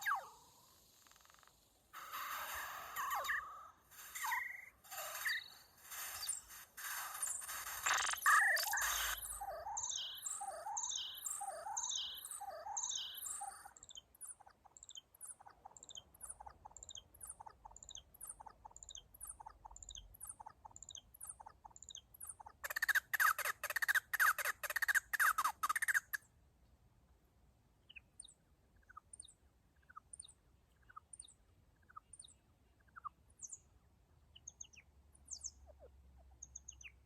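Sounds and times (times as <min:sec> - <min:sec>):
synthesizer bird-like chirps: 0:00.0 - 0:01.5, 0:02.9 - 0:06.4, 0:07.2 - 0:26.2.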